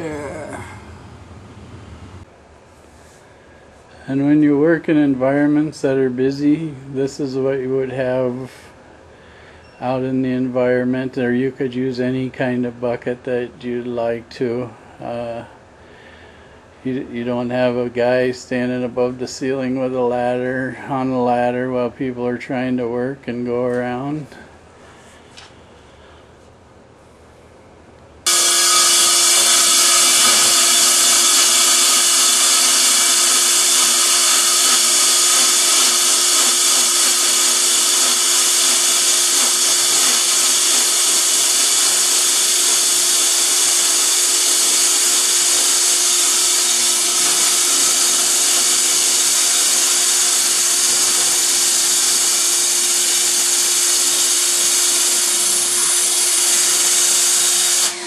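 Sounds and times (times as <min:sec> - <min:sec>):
concrete core drill boring: 0:28.2 - 0:58.0.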